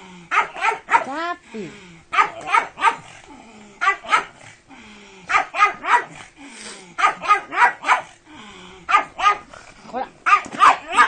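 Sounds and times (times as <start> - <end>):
dog barking: 0.3 - 1.2, 2.1 - 3.1, 3.8 - 4.4, 5.3 - 6.2, 7.0 - 8.2, 8.9 - 9.5, 10.2 - 11.0.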